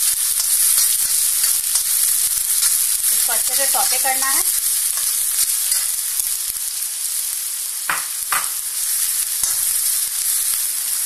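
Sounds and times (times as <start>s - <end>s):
spatula scraping a pan: 0.0s - 6.3s, 9.4s - 10.1s
onions sizzling in hot oil: 0.0s - 11.0s.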